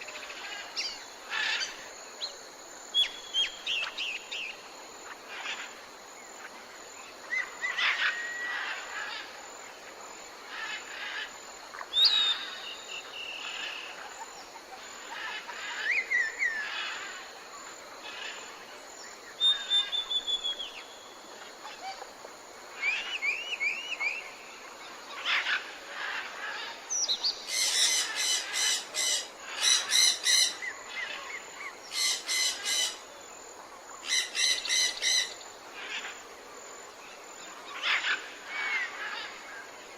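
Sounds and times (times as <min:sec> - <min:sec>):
faint background hiss: 0:00.0 - 0:39.9
birds chirping and calling: 0:25.1 - 0:33.0, 0:34.0 - 0:36.1.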